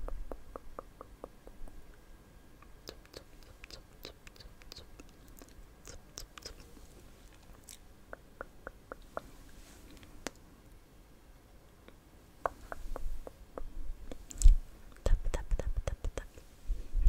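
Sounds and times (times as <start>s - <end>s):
wet mouth clicks and smacks: 2.6s - 6.8s.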